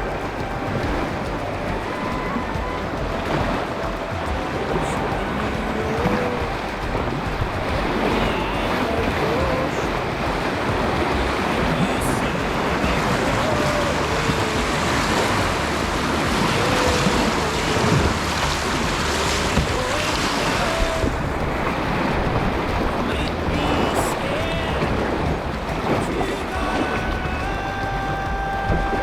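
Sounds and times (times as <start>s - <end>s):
river rapids rushing: 0.0s - 29.0s
wind noise on microphone: 0.0s - 29.0s.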